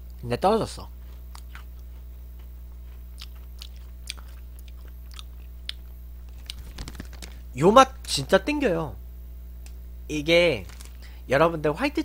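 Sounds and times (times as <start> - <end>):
low electrical hum: 0.0 - 12.0
crunchy biscuit chewing: 1.0 - 7.4.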